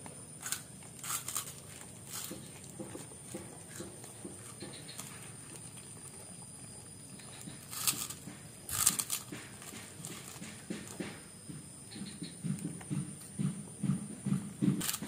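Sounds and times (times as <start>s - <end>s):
child chewing crunchy cracker: 0.3s - 11.2s.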